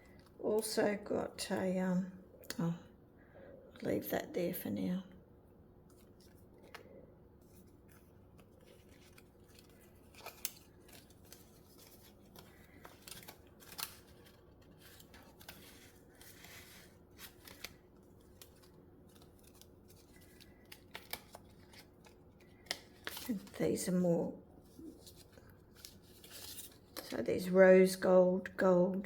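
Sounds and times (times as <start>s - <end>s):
soft rustle of sheets and packets: 0.0s - 1.1s, 5.8s - 27.6s
low room hum: 0.0s - 29.0s.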